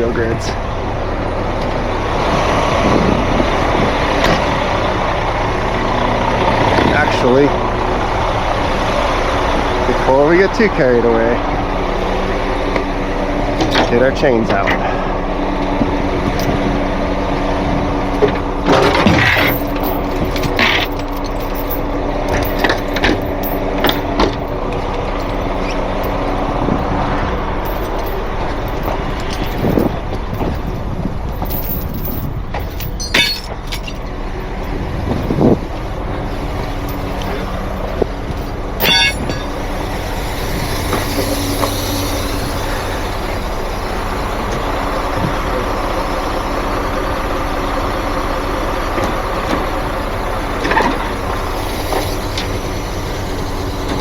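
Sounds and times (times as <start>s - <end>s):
diesel truck engine idling: 0.0s - 54.0s
sharp metal clanks: 18.7s - 35.4s, 36.6s - 39.8s.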